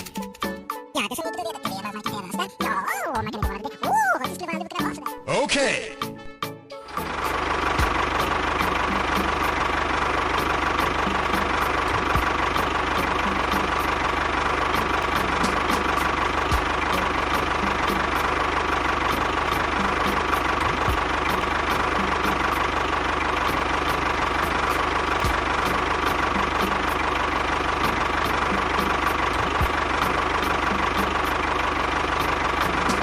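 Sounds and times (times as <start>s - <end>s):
small engine idling: 6.9s - 33.0s.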